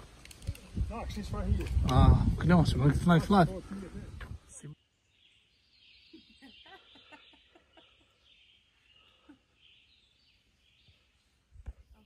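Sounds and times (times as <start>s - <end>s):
faint bird calls: 4.8s - 11.4s.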